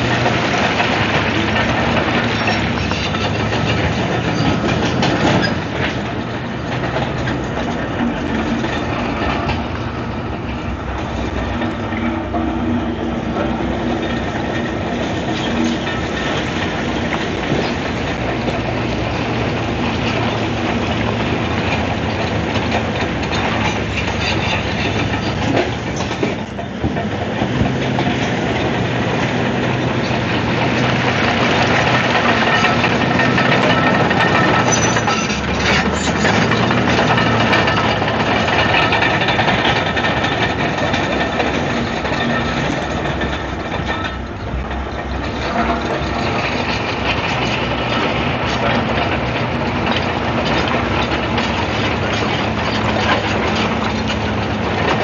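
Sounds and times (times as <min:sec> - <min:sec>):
bulldozer diesel engine: 0:00.0 - 0:55.0
steel tracks clanking: 0:00.0 - 0:55.0.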